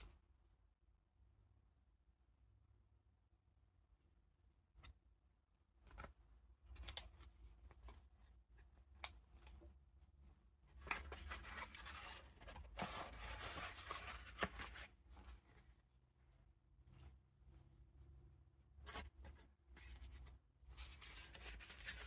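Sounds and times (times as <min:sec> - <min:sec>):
paper rustling: 0:10.8 - 0:15.6, 0:18.8 - 0:22.0.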